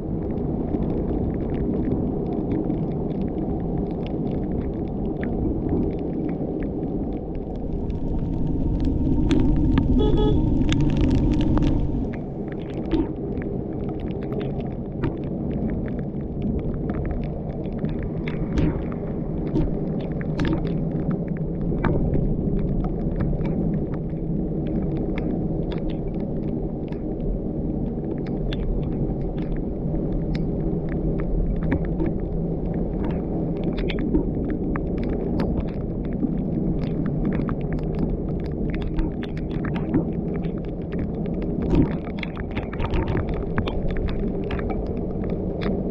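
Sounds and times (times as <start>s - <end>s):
car engine and tyres rumbling: 7.5s - 12.5s.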